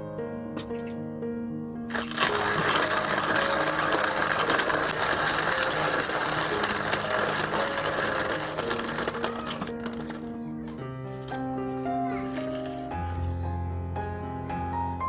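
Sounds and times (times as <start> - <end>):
background music: 0.0 - 15.0
mechanical whirring rattle: 1.9 - 10.4.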